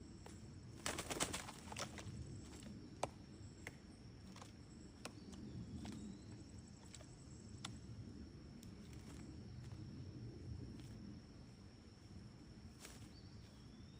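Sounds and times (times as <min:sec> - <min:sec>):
high insect drone: 0:00.0 - 0:13.9.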